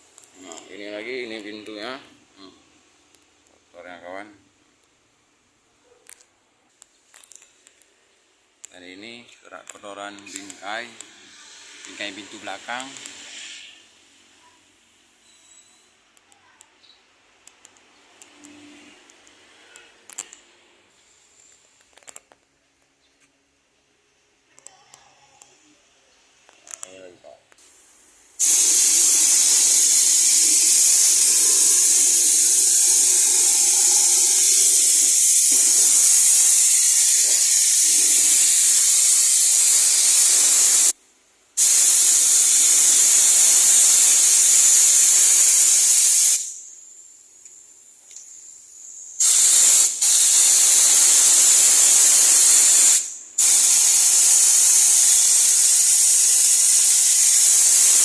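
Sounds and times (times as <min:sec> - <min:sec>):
pressure washer spray hissing: 0:10.2 - 0:13.8, 0:27.6 - 0:41.0, 0:41.6 - 0:46.8, 0:48.4 - 0:58.0.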